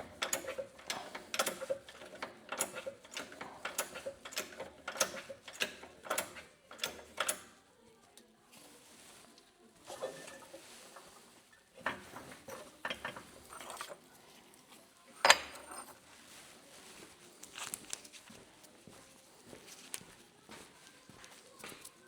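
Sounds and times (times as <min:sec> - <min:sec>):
tools clicking and clattering: 0:00.0 - 0:07.6, 0:09.9 - 0:11.2, 0:11.8 - 0:14.0, 0:15.2 - 0:16.0.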